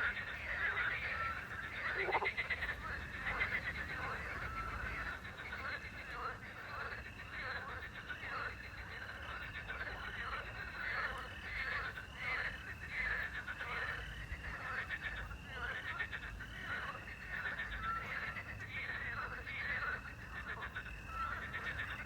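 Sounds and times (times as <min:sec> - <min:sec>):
crickets chirring: 0:00.0 - 0:06.1
frogs croaking: 0:00.0 - 0:22.0.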